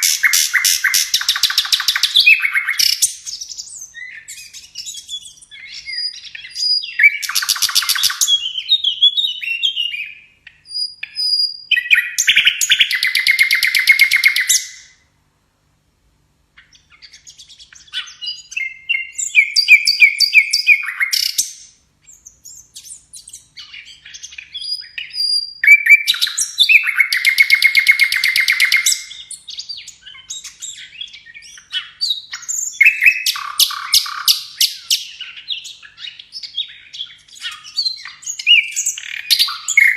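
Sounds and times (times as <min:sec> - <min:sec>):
songbird singing trills and whistles: 0:00.0 - 0:15.1, 0:16.6 - 0:39.9.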